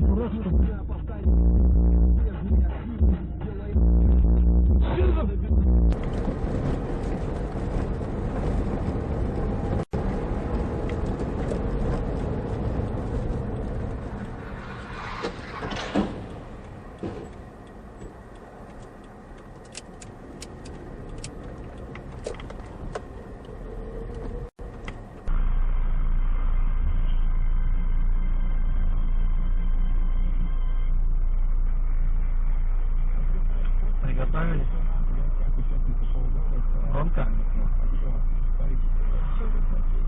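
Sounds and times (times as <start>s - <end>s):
car engine and road noise: 0.0s - 40.0s
sharp clicks: 15.2s - 25.0s.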